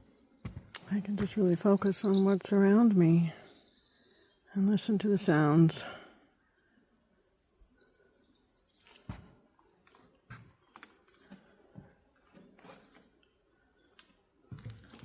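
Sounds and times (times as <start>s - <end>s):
footsteps on dirt trail: 0.4s - 1.7s, 14.4s - 15.0s
songbird trilling: 0.8s - 4.4s.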